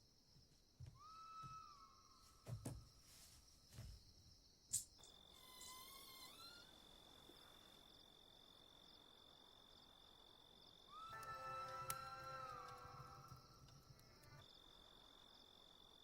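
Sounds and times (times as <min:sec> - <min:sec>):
faint crickets trilling: 0:00.0 - 0:16.0.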